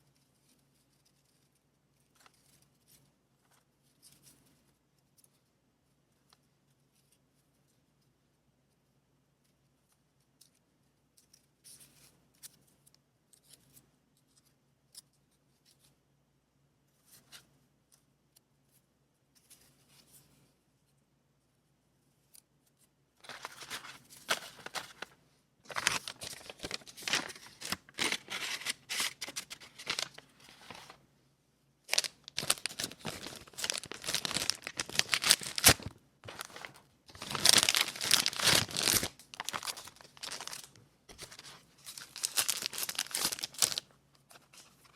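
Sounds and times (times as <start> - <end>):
paper tearing and crinkling: 23.2 - 31.0, 31.9 - 43.8.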